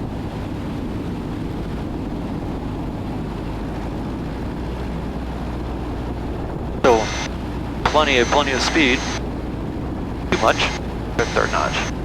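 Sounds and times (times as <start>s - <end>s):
aircraft engine and propeller: 0.0s - 12.0s.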